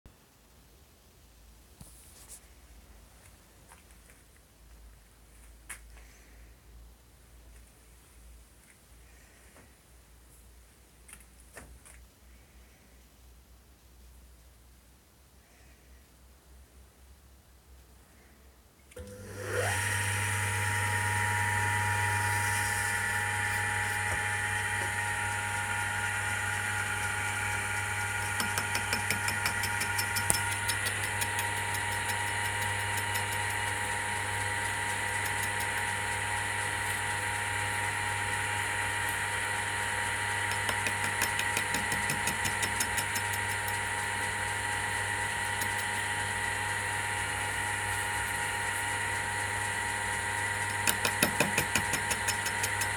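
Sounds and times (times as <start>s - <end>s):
lathe motor humming and whining: 19.0s - 52.9s
fast ticking: 26.9s - 36.1s, 40.5s - 43.8s.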